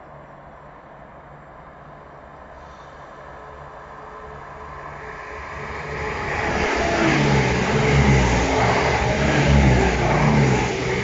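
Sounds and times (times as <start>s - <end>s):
diesel train engines: 0.1s - 11.0s
wheels rushing on rails: 3.0s - 11.0s.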